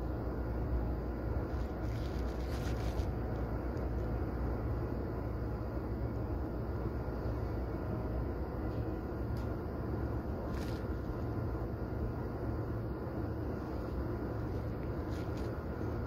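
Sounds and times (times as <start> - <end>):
hiss and rattle: 13.4 - 16.0.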